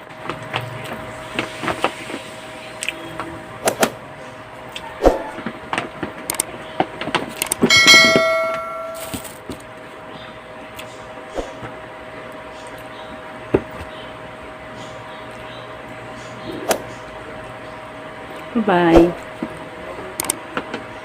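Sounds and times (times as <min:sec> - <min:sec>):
loud ringing clink: 0:07.6 - 0:09.4
tableware clicking and tapping: 0:07.6 - 0:09.4.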